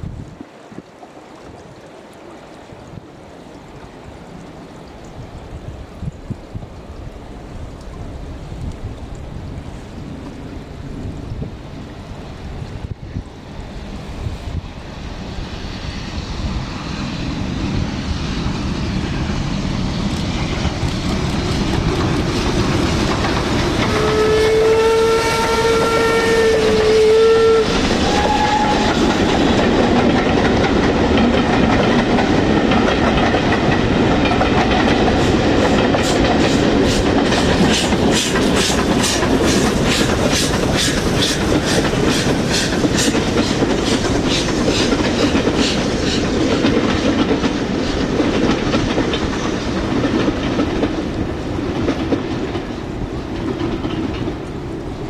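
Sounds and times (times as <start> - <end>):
steam train approaching: 6.0 - 55.0
rhythmic clatter of train wheels: 12.8 - 55.0
locomotive whistle: 23.7 - 29.9.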